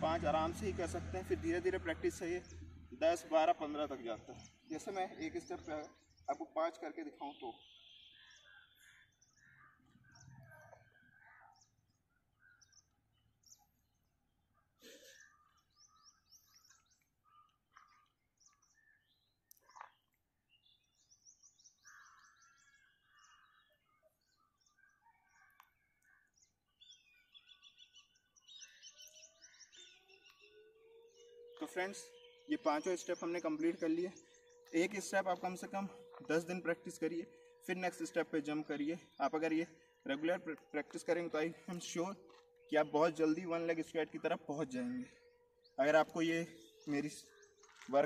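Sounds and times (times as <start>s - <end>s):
faint birds chirping: 0.0s - 48.0s
high bird trills: 7.1s - 11.6s.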